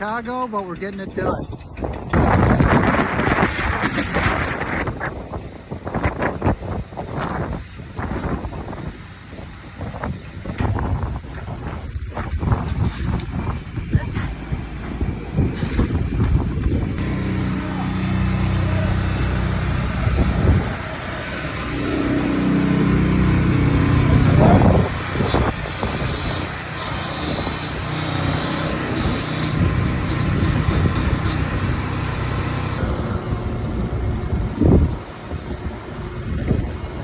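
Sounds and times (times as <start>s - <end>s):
vehicle engine running: 13.4s - 37.0s.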